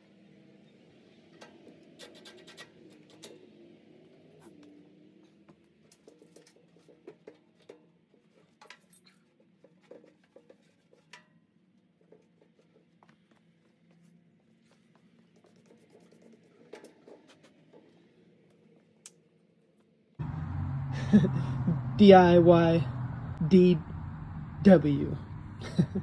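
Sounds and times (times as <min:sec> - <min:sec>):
faint low hum: 0:20.2 - 0:26.0.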